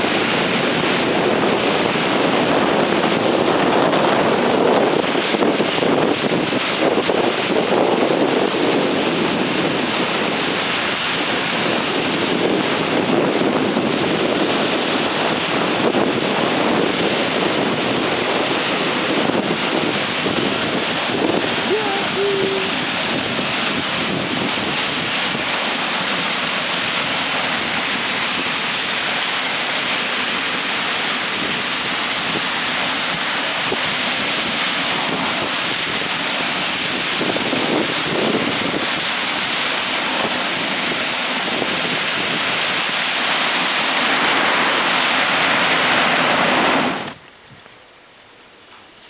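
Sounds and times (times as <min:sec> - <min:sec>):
loud rushing noise: 0:36.8 - 0:47.2.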